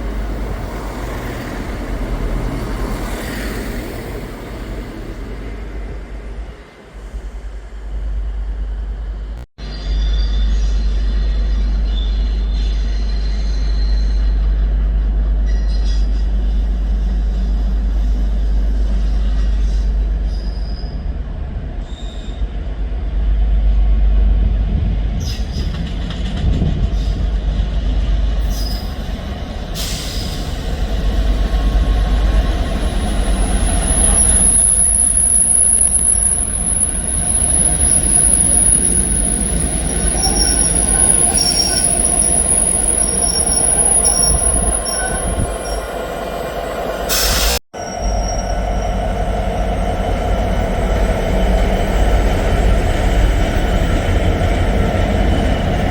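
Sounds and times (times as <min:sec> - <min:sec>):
diesel train engine rumbling: 0:00.0 - 0:55.9
high wheel squeal: 0:28.4 - 0:55.9.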